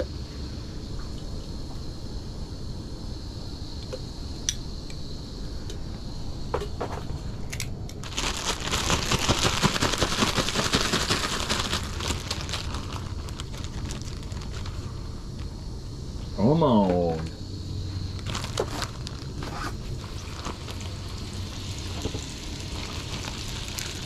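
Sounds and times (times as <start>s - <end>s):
fish frying in hot oil: 19.8s - 24.0s.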